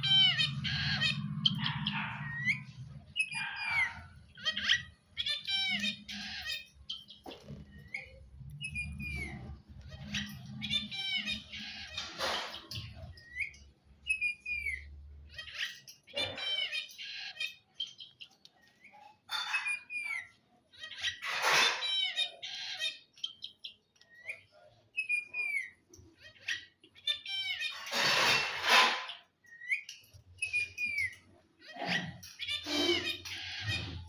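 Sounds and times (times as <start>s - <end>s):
parrot chirping and whistling: 0.0s - 16.7s, 27.2s - 31.2s
parrot squawking: 0.0s - 34.0s.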